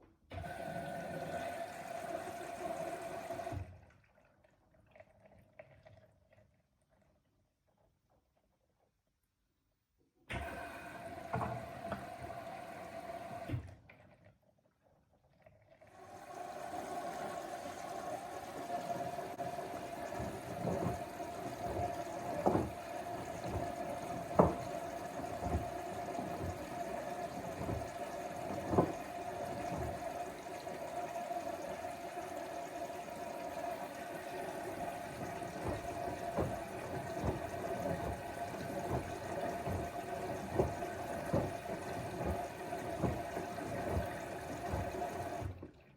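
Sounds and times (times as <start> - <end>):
water sloshing in washing machine: 0.3 - 7.1, 10.3 - 14.4, 15.2 - 45.9
pump hum: 15.9 - 45.8.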